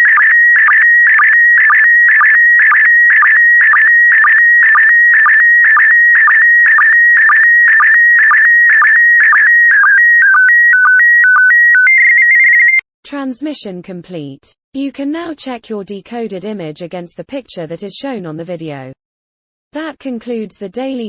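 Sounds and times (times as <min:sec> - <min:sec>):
warbling image signal tone: 0:00.0 - 0:12.8.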